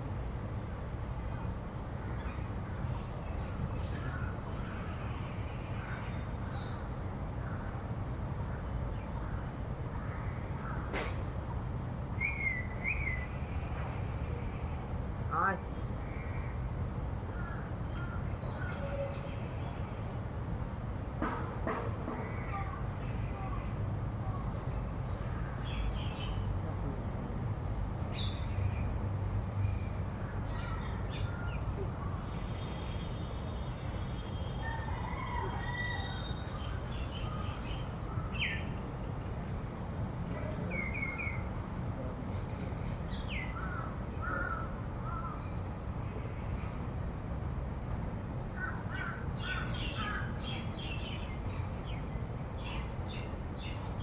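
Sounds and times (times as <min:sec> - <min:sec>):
crows cawing: 0:43.6 - 0:45.4.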